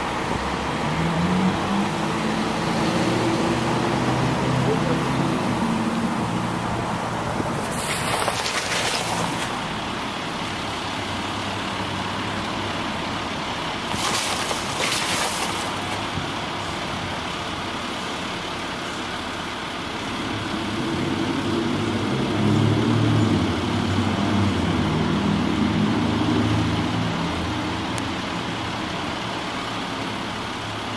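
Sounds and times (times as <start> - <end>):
short bursts of hiss: 7.6 - 9.6, 13.9 - 16.1.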